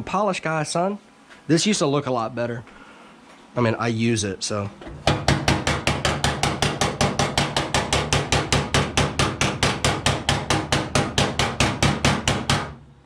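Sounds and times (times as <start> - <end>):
hammer tapping on sheet steel: 5.0 - 12.8.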